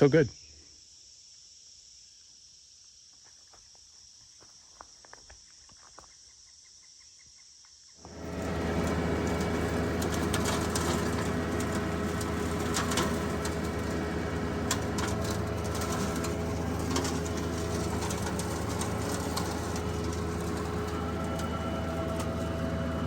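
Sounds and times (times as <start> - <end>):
tractor diesel engine under load: 8.0 - 23.0.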